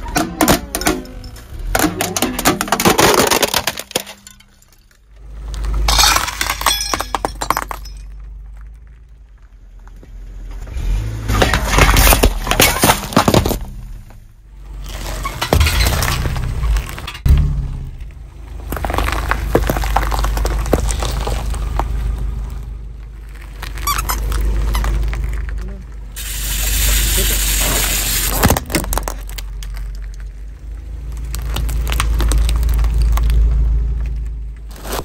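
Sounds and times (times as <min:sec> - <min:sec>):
car rumble: 0:00.0 - 0:35.0
tyre crushing food: 0:01.7 - 0:04.2, 0:34.7 - 0:35.0.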